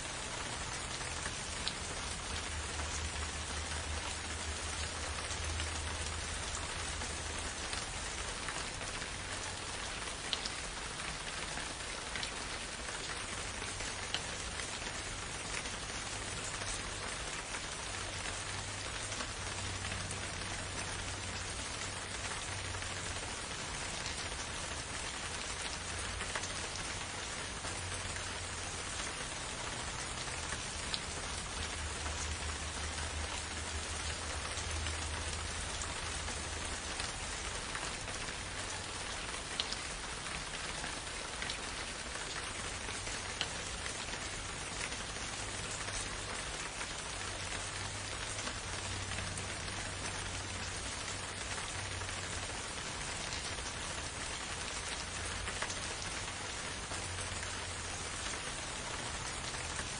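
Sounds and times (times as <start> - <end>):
rain pattering on leaves: 0.0 - 59.9.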